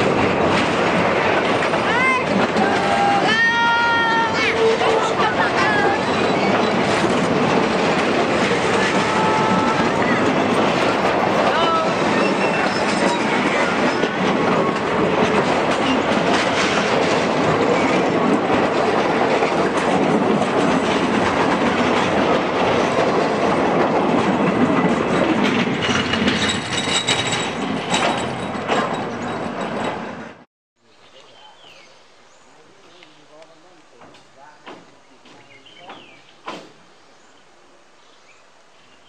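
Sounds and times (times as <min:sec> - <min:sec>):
train wheels clattering on rails: 0:00.0 - 0:30.5, 0:33.4 - 0:36.8
high wheel squeal: 0:06.0 - 0:07.0, 0:12.1 - 0:14.2.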